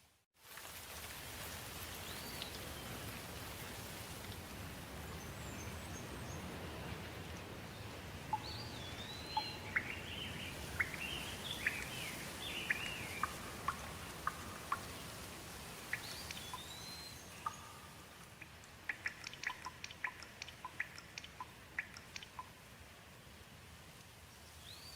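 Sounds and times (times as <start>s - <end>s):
steady rain: 0.0s - 24.9s
sharp water drips: 0.5s - 22.9s
bird whistling: 8.4s - 13.4s.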